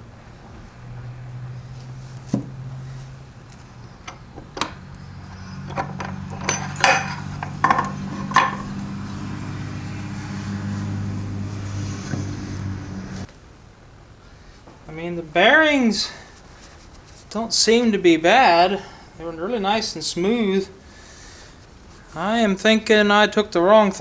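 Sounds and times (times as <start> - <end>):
steady low hum: 0.0 - 13.3
metal parts clinking: 4.0 - 9.5.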